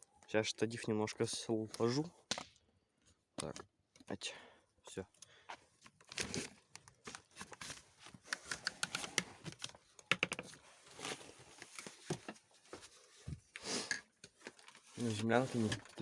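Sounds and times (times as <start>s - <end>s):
handling clicks and knocks: 8.3s - 10.6s.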